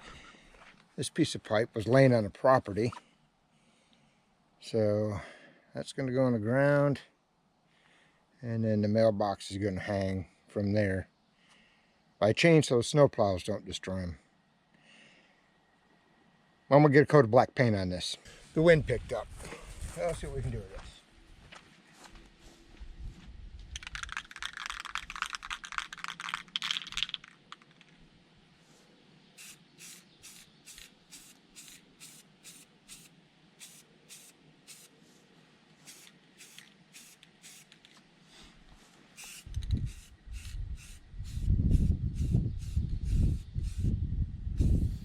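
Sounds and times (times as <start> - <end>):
spray paint can hissing: 23.8 - 27.7, 29.4 - 34.9, 35.8 - 37.8, 39.2 - 44.0
wind buffeting microphone: 39.4 - 45.0.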